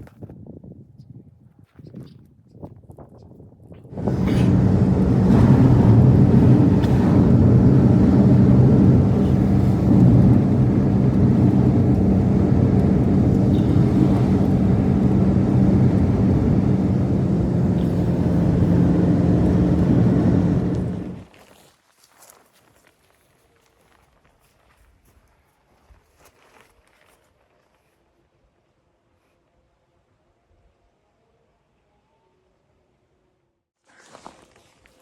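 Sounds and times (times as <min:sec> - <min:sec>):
engine running steadily: 0:03.9 - 0:21.3.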